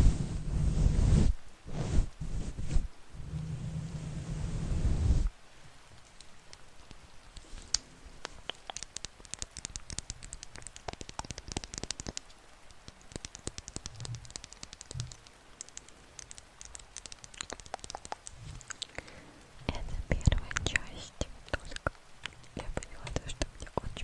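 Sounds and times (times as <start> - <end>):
small crisp clicks and taps: 5.9 - 24.0.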